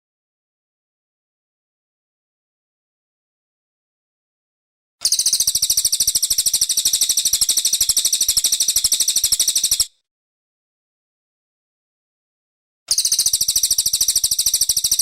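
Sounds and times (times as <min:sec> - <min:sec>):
songbird rapid trill: 0:05.0 - 0:10.0, 0:12.9 - 0:15.0.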